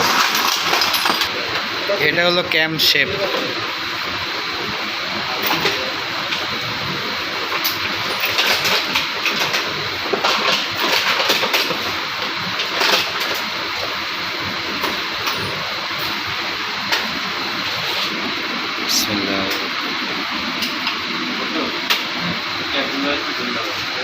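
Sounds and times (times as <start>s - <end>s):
small metal parts clicking: 0.0s - 1.3s
workshop noise: 0.0s - 24.0s.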